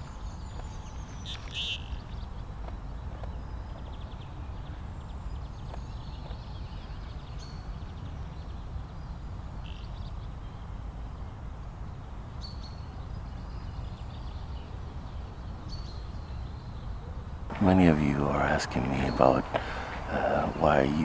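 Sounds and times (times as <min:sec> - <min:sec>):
short high bird calls: 0:17.5 - 0:21.0.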